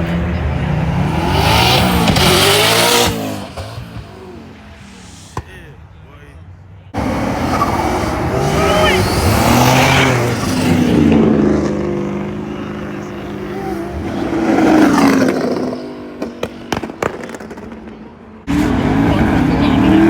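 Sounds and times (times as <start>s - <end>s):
car engines revving: 0.0s - 20.0s
sharp cracks: 16.2s - 18.0s.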